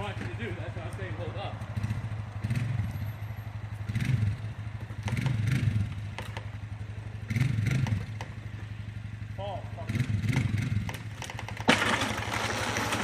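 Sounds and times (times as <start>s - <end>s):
engine running: 0.0s - 13.0s
sharp knocks and clatter: 5.0s - 6.6s, 7.3s - 8.4s, 10.2s - 13.0s.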